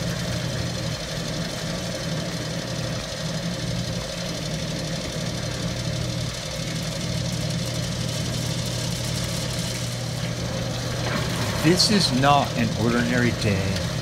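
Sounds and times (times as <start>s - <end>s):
fuel pump humming: 0.0s - 14.0s.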